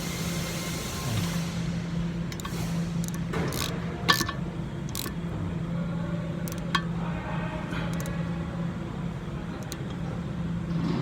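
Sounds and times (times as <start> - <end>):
steady low hum: 0.0 - 11.0
wrench clicking and knocking: 2.3 - 5.2, 6.4 - 6.9, 7.9 - 8.1.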